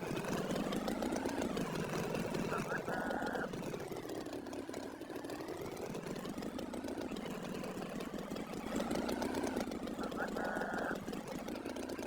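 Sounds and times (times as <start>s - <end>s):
engine idling with rattle: 0.0s - 12.0s.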